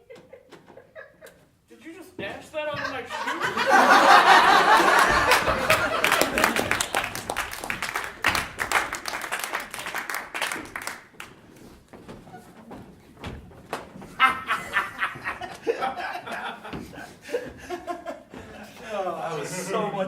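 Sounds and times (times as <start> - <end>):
audience laughing: 2.8 - 7.4, 14.2 - 19.9
audience clapping: 3.5 - 11.5.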